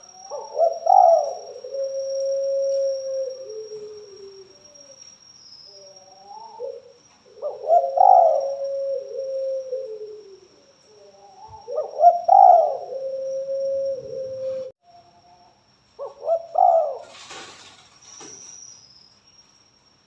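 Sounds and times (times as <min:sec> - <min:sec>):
dove cooing: 0:00.0 - 0:05.0, 0:05.7 - 0:14.8, 0:16.0 - 0:17.3.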